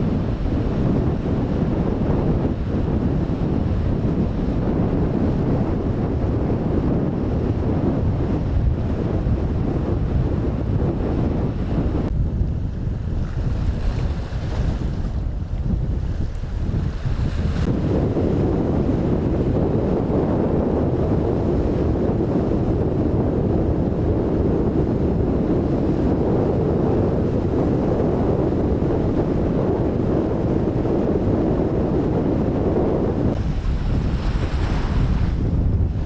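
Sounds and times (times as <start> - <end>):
rough sea waves: 0.0 - 19.8, 30.2 - 36.0
strong wind buffeting microphone: 0.0 - 36.0.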